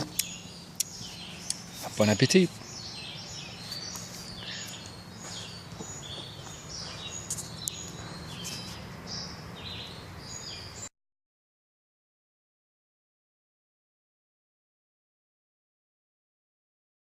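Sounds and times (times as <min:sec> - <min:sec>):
small birds chirping: 0:00.0 - 0:10.9.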